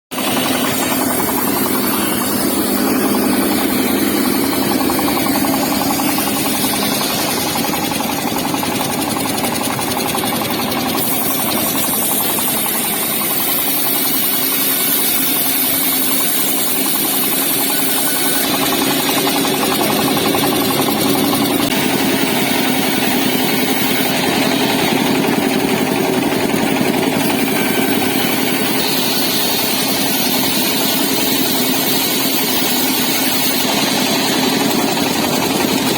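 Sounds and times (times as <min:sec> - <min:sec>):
engine-driven wood saw running: 0:00.1 - 0:35.9.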